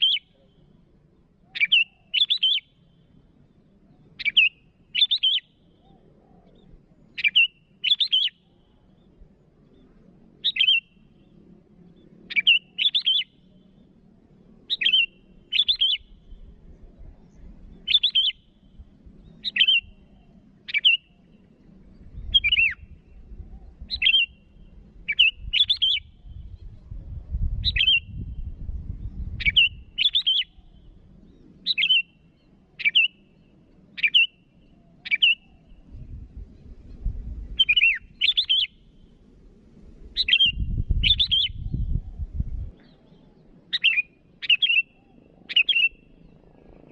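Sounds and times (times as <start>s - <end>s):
faint low rumble: 21.3s - 30.0s, 35.7s - 38.2s, 38.8s - 43.6s.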